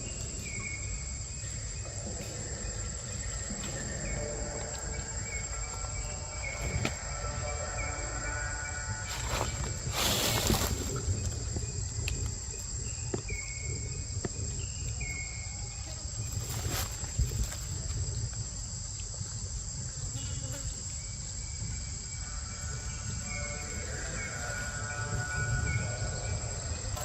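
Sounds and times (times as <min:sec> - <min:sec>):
low rumble: 0:00.0 - 0:15.4
insects droning: 0:00.0 - 0:27.0.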